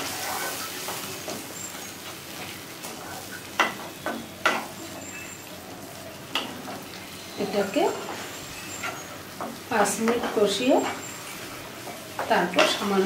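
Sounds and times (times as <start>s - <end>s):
masala sizzling: 0.0s - 13.0s
spatula scraping pan: 6.4s - 13.0s.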